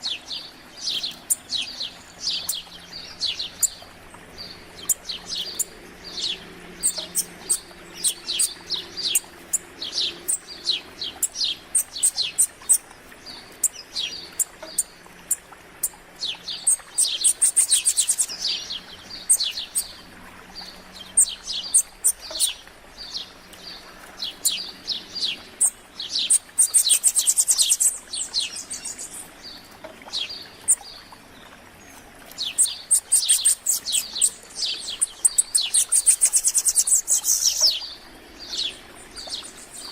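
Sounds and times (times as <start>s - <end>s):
songbirds chirping: 0.0s - 39.9s
very high bird trill: 32.5s - 37.8s.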